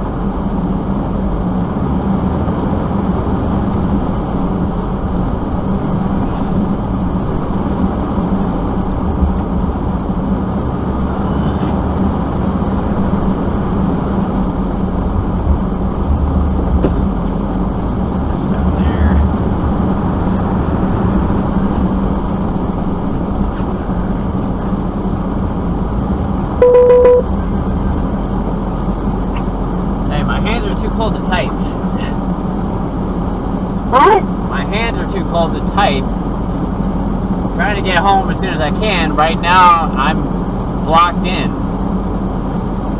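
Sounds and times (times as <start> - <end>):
car horn honk: 26.6 - 27.3.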